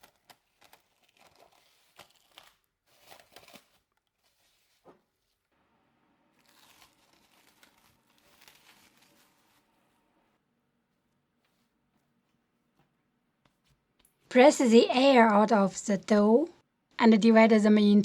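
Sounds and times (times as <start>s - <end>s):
hands rustling dough: 0.0s - 5.5s, 6.4s - 14.2s.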